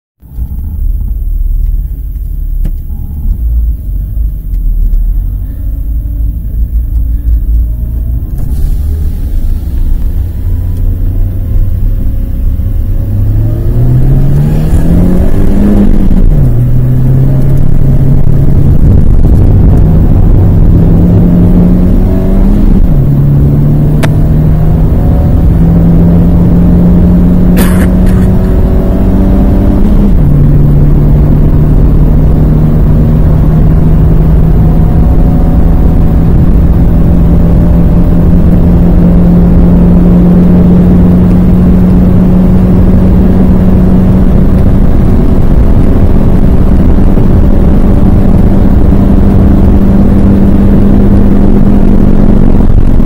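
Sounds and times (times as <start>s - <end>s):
car engine accelerating: 0.2s - 53.0s.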